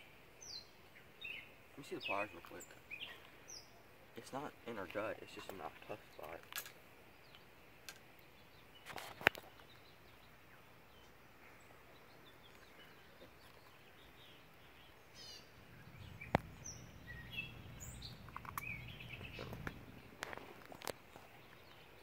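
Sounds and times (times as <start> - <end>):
birds chirping: 0.0 - 22.0
sharp clicks: 18.0 - 21.0.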